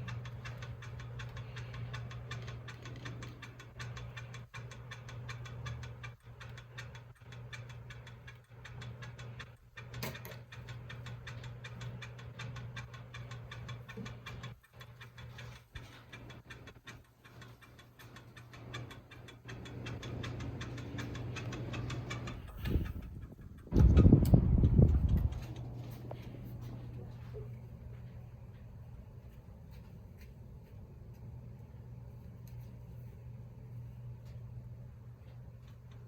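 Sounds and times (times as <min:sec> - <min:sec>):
fast even ticking: 0:00.0 - 0:26.7
ceiling fan motor hum: 0:00.0 - 0:36.0.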